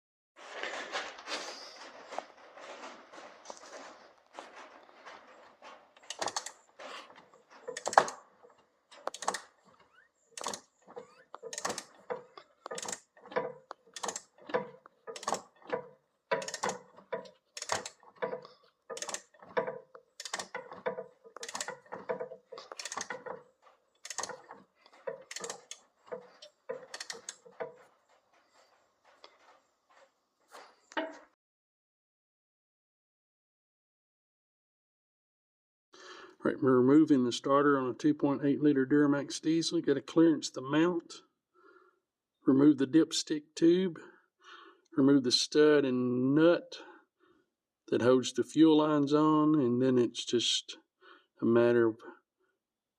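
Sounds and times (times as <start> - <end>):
ratchet wrench clicking: 6.1 - 6.5, 7.8 - 8.2, 9.1 - 9.4, 10.4 - 10.6, 11.5 - 11.9, 12.7 - 13.1, 13.9 - 14.3, 15.1 - 15.5, 16.4 - 16.8, 17.6 - 18.0, 18.9 - 19.3, 20.2 - 21.8, 22.8 - 23.2, 24.0 - 24.4, 25.3 - 25.8, 26.8 - 27.4.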